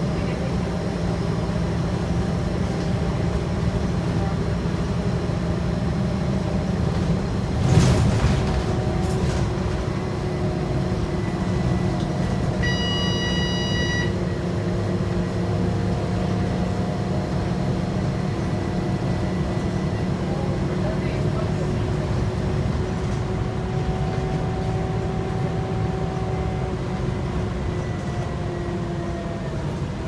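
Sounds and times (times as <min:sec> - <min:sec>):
bus diesel engine: 0:00.0 - 0:30.0
road noise: 0:00.0 - 0:30.0
electronic beep: 0:12.6 - 0:14.2.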